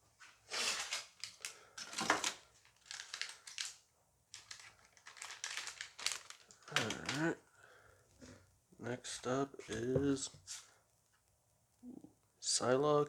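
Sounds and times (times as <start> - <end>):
foil wrapper crinkling: 0.5 - 7.3.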